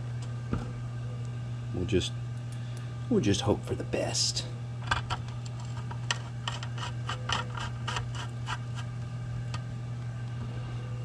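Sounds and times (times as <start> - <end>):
steady low hum: 0.0 - 11.0
hardware clicks and scrapes: 4.8 - 8.9.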